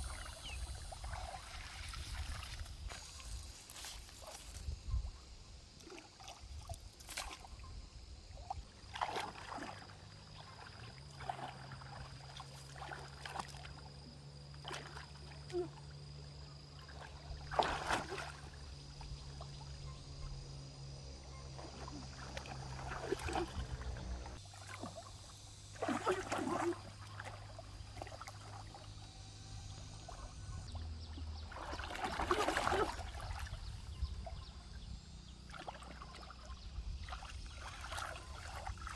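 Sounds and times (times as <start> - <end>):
stream trickling: 0.0 - 4.8, 5.6 - 38.9
water splashing: 8.8 - 13.8, 16.7 - 19.6, 21.6 - 29.1, 29.8 - 34.4, 35.4 - 38.9.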